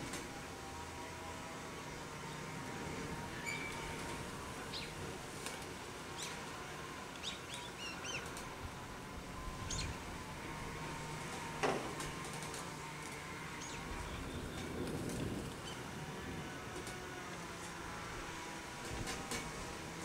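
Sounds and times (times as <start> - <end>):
wind in the trees: 0.0 - 20.0
birds chirping: 1.6 - 16.8.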